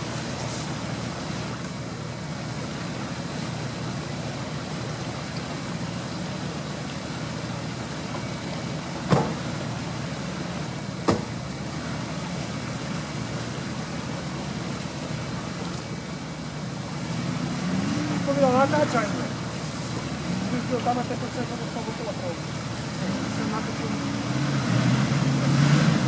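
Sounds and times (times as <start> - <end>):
vehicle engine running: 0.0 - 26.0
sharp knocks: 11.0 - 11.3.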